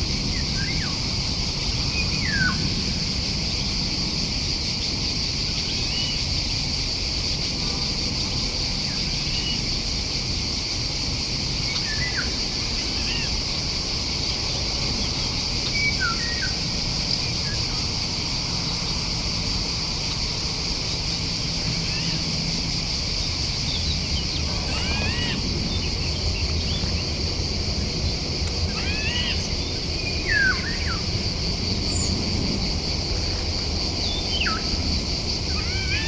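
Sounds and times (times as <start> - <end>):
small birds chirping: 23.2 - 27.4.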